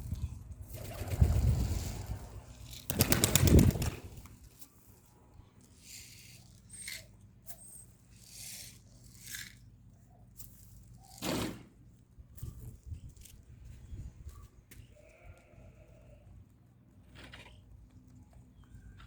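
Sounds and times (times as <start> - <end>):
pigeon wings flapping: 0.7 - 4.4.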